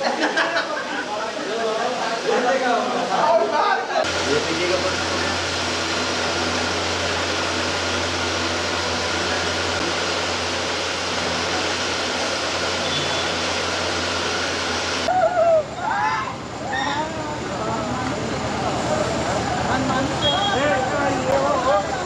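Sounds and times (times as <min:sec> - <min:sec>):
loud fan rushing: 0:00.0 - 0:22.0
faint voices: 0:15.1 - 0:22.0.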